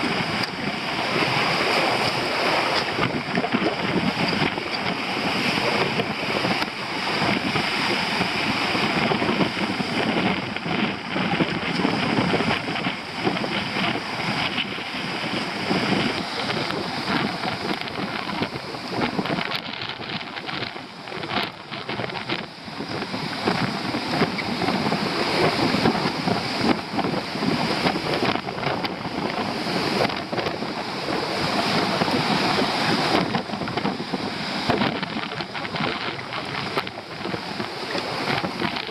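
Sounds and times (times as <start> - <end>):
waves breaking on shore: 0.0 - 38.9
wind buffeting microphone: 0.0 - 38.9.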